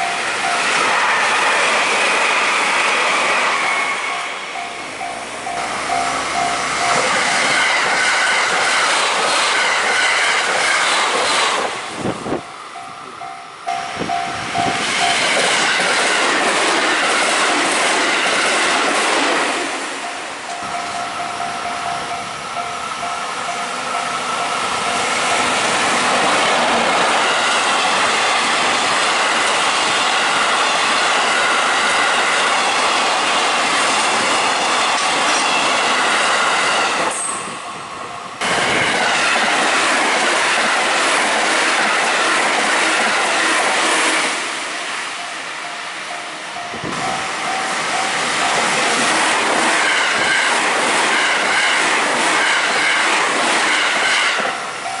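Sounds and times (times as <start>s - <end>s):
train wheels clattering on rails: 0.0s - 45.4s, 46.1s - 55.0s
train rushing past: 0.0s - 55.0s
level crossing bell ringing: 20.0s - 25.6s.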